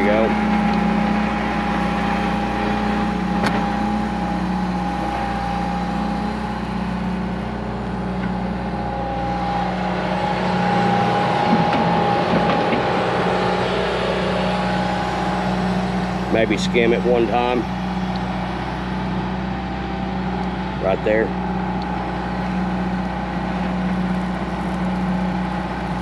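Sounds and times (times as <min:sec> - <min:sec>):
diesel engine running: 0:00.0 - 0:26.0
steady whine: 0:00.0 - 0:26.0.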